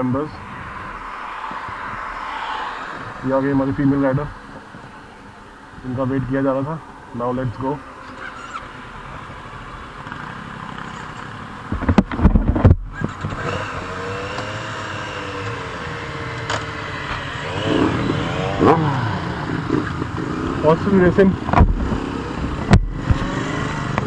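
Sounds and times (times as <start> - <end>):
motorcycle engine revving: 10.0 - 24.0.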